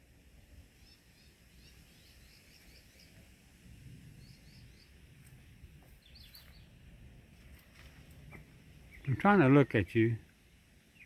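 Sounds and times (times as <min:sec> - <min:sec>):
faint high bird chirps: 0:00.8 - 0:03.3, 0:04.2 - 0:05.0, 0:05.9 - 0:06.8.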